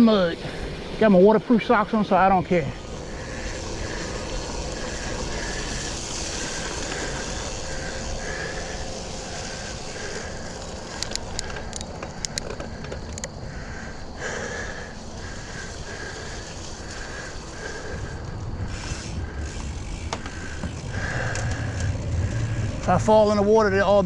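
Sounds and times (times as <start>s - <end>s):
bicycle tyres rolling on mud: 0.0s - 24.0s
sharp clicks and knocks: 11.0s - 13.4s.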